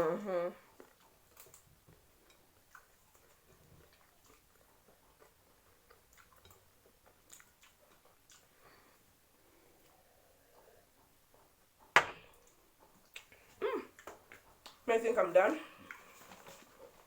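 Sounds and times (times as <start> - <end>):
faint chewing: 0.0 - 14.9, 15.6 - 17.0
soft mouth clicks: 12.4 - 14.8.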